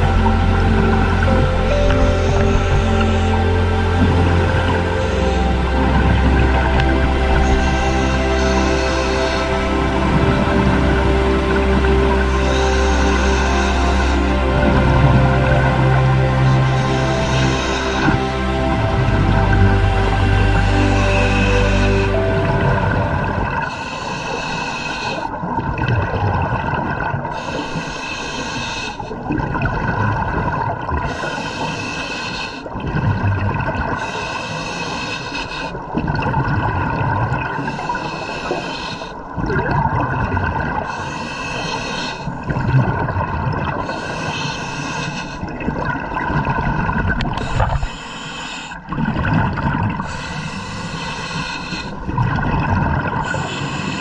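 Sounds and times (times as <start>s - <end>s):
bubbling exhaled air: 0.0s - 54.0s
hissing regulator inhale: 11.6s - 14.5s, 16.4s - 18.6s, 19.7s - 22.6s, 23.6s - 25.4s, 27.3s - 29.1s, 31.1s - 32.7s, 34.0s - 35.8s, 37.6s - 39.2s, 40.8s - 42.4s, 43.8s - 45.5s, 47.4s - 48.9s, 50.0s - 52.1s, 53.2s - 54.0s.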